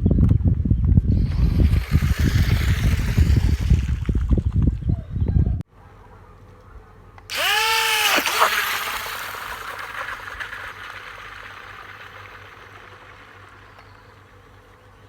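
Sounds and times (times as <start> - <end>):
electric motor whine: 1.0 - 4.8, 7.3 - 14.7.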